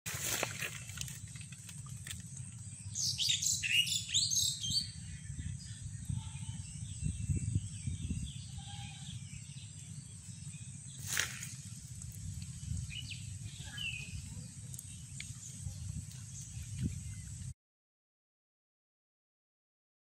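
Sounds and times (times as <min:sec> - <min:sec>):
low background rumble: 0:00.2 - 0:17.5
bird chirping: 0:02.0 - 0:17.5.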